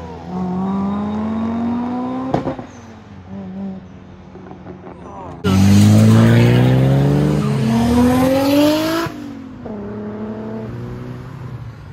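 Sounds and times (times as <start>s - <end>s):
car engine revving: 5.4s - 11.5s.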